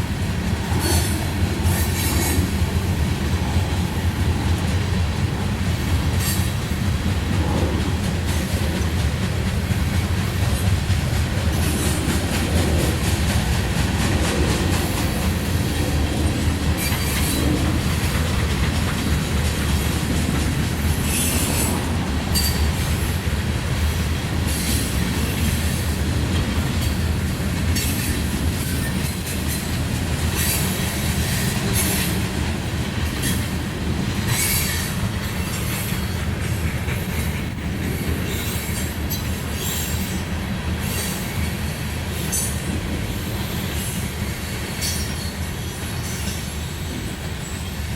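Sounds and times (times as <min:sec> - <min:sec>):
train rumbling past: 0:00.0 - 0:47.9
train wheel clicks: 0:00.1 - 0:43.0
train wheel squeals: 0:00.6 - 0:02.7, 0:06.1 - 0:15.9, 0:16.5 - 0:23.4, 0:24.4 - 0:32.3, 0:33.0 - 0:33.6, 0:34.2 - 0:47.9.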